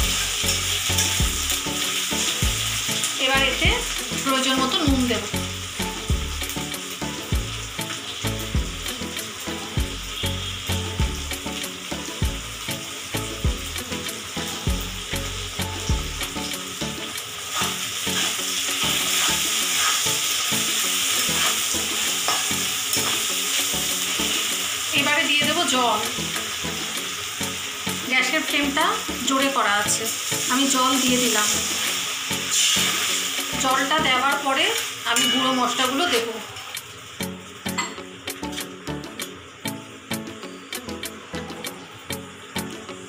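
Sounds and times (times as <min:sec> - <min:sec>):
vegetables sizzling in oil: 0:00.0 - 0:43.0
metal spatula scraping pan: 0:17.5 - 0:20.4, 0:21.2 - 0:23.3.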